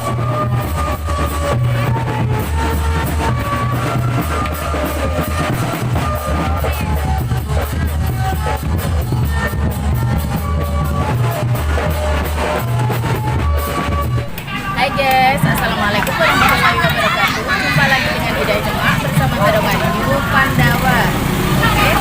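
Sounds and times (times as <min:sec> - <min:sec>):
drum kit: 0:00.0 - 0:22.0
heavy bass line: 0:01.8 - 0:08.1.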